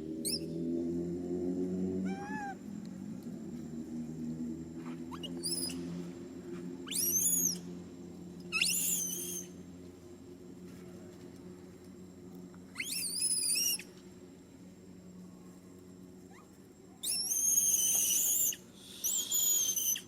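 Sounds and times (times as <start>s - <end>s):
baby monkey squealing: 5.1s - 5.8s, 6.8s - 7.6s, 8.5s - 9.5s, 12.8s - 13.8s, 17.0s - 20.0s.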